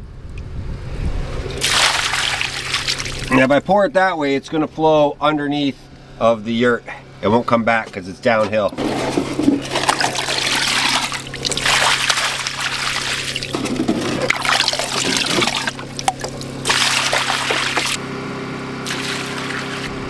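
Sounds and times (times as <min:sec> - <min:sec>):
engine humming: 0:00.0 - 0:20.0
water splashing onto ground: 0:01.6 - 0:03.4, 0:09.4 - 0:18.0, 0:18.8 - 0:19.9.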